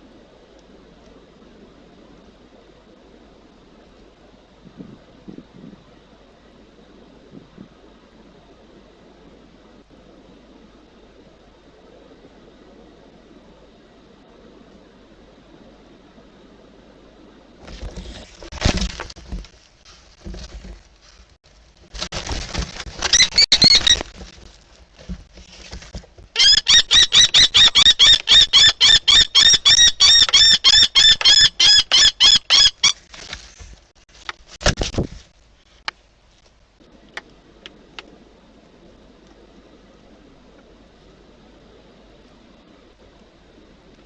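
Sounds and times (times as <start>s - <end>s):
kestrel shrill alarm calls: 26.4s - 33.0s.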